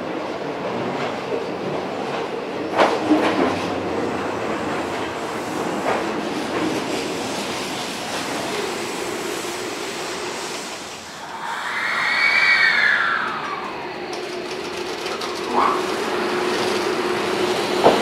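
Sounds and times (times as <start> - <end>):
train rolling rumble: 0.0 - 18.0
wheels clicking over rail joints: 13.2 - 18.0.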